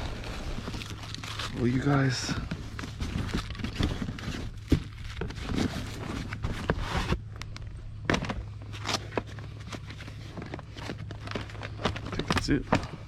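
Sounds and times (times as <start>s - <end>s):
steady low hum: 0.0s - 13.0s
junk items knocking and clattering: 2.2s - 7.2s, 8.0s - 13.0s.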